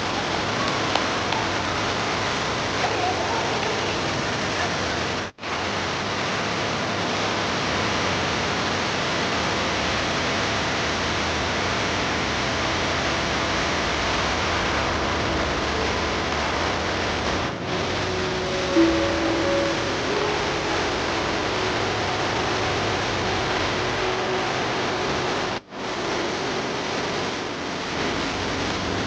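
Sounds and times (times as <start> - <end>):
indoor waterfall rushing: 0.0 - 29.0.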